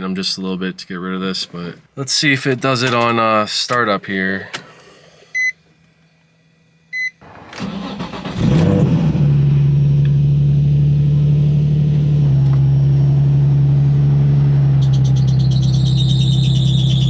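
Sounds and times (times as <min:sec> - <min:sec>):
car engine cranking and idling: 0:07.2 - 0:17.0.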